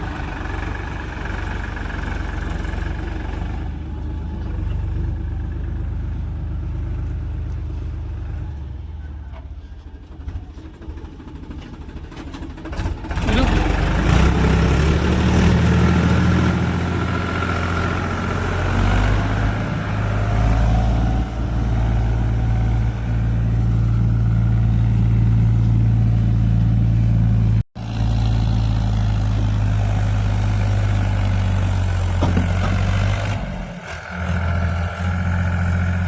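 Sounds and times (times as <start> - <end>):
diesel engine running under load: 0.0 - 36.0.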